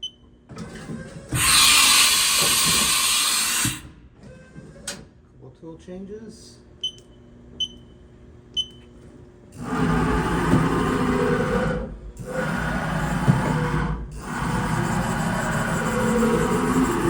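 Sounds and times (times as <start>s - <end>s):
control panel key beeps: 6.8s - 8.0s, 8.6s - 8.9s
machine tool changer noise: 9.6s - 17.0s.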